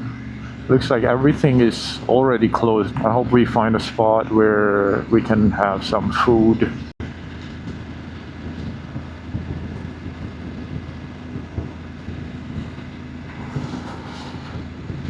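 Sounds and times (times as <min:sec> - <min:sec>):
motorcycle engine running: 0:00.0 - 0:15.0
wind on microphone: 0:06.7 - 0:15.0.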